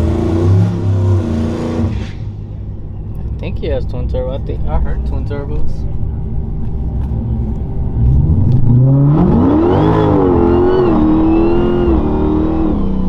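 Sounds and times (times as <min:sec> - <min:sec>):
engine revving: 0:00.0 - 0:02.4, 0:07.8 - 0:13.0.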